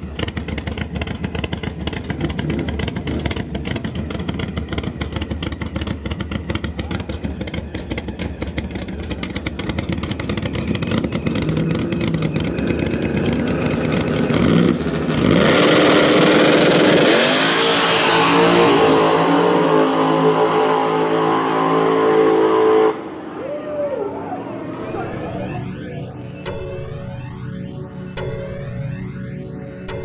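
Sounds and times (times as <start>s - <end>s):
drag racing engine idling choppily: 0.0s - 17.3s
engine revving and launching: 0.0s - 26.0s.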